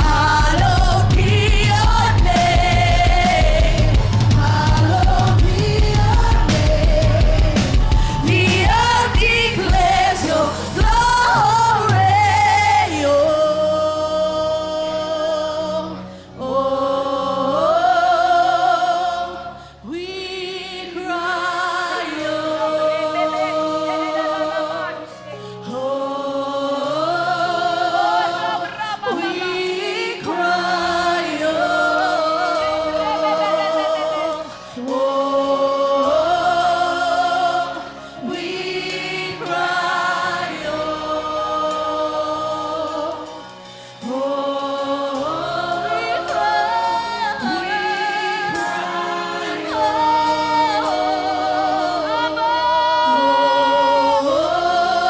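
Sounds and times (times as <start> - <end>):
band with bass and drums: 0.0 - 12.7
group singing gospel song: 0.0 - 55.0.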